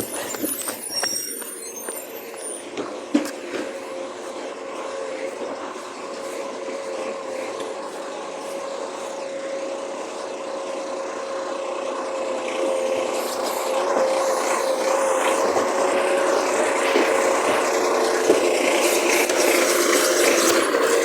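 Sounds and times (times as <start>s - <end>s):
mechanical noise: 0.0s - 7.3s
garbage truck whine: 0.0s - 21.0s.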